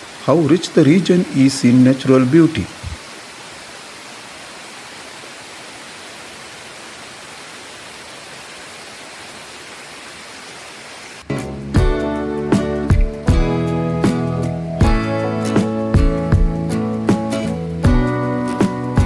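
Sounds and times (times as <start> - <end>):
water rushing down waterfall: 0.0 - 11.3
acoustic guitar music: 11.3 - 19.0.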